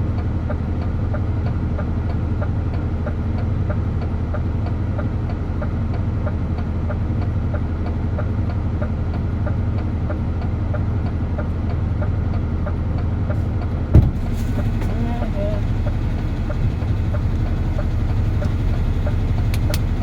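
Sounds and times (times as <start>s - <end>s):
truck diesel engine humming: 0.0s - 20.0s
light ticking: 14.6s - 20.0s.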